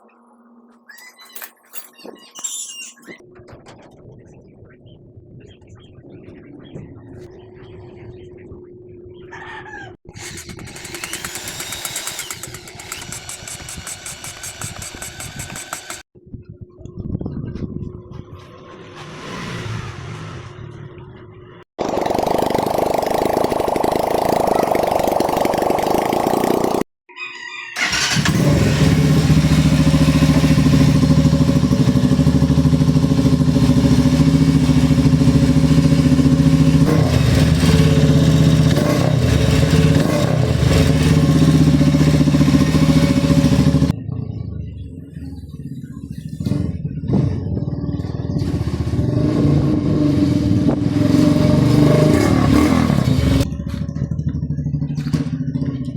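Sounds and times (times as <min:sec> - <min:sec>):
motorcycle engine cranking: 0:10.1 - 0:16.0, 0:21.8 - 0:26.8, 0:27.8 - 0:44.0
motorcycle engine running: 0:10.2 - 0:16.0, 0:21.8 - 0:26.9, 0:27.8 - 0:55.9.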